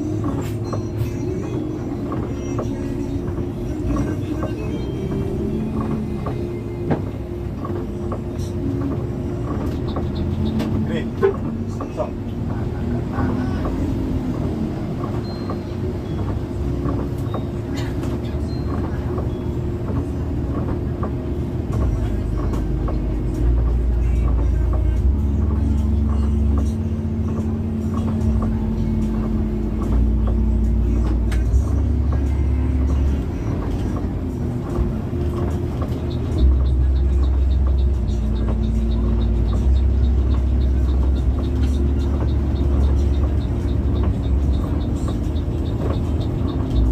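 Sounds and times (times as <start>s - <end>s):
bus engine and road drone: 0.0s - 46.9s.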